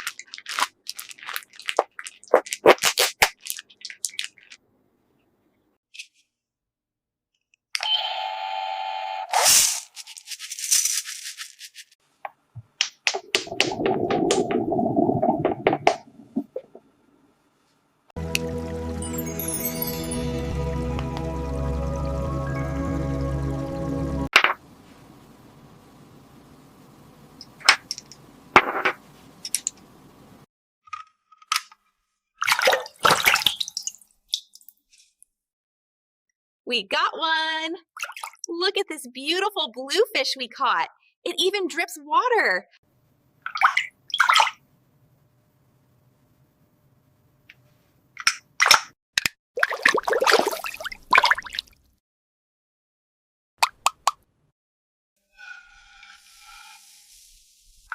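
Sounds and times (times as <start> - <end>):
electronic toy tone: 7.8 - 9.4
water splashing and dripping: 12.8 - 16.8, 32.4 - 34.8, 49.6 - 51.9
faint steady hum: 24.6 - 30.4.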